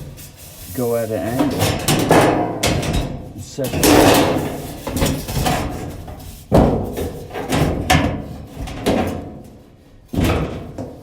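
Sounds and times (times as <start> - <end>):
sheet metal parts knocking: 1.1 - 9.3.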